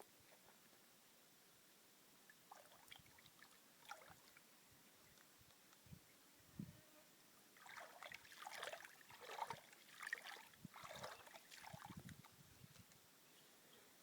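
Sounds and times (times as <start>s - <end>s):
water splashing: 7.6s - 12.2s.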